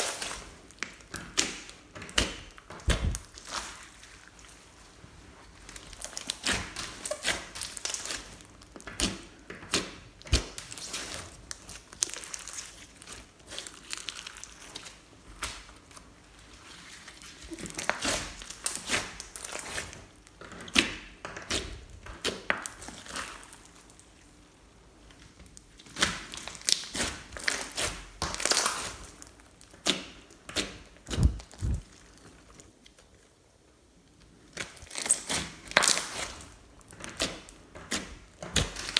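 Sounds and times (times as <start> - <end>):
slime squished by hand: 0.0 - 4.6, 25.8 - 32.3.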